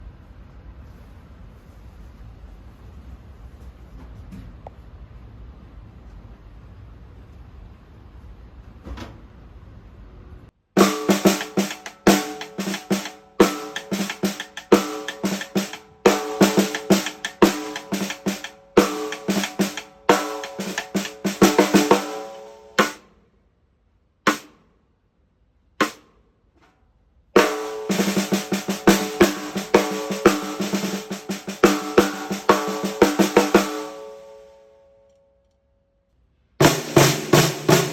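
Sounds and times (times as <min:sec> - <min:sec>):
snare drum played with sticks: 0:10.8 - 0:23.1, 0:24.3 - 0:24.6, 0:25.8 - 0:26.1, 0:27.4 - 0:34.3, 0:36.6 - 0:37.9.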